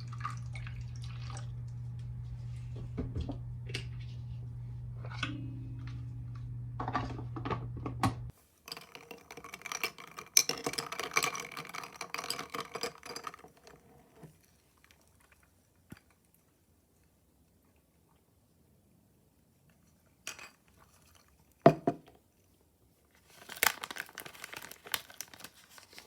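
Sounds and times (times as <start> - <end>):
kitchen appliance hum: 0.0 - 8.3
kitchenware clattering and clinking: 6.8 - 13.8.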